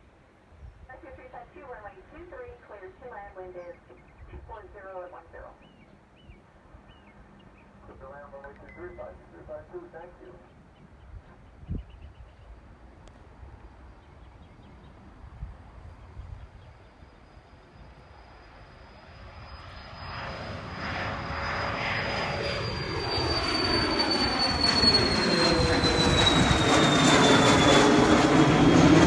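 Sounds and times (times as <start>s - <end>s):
jet engines taking off: 1.0s - 5.6s, 12.5s - 29.0s
high turbine whine: 7.3s - 29.0s.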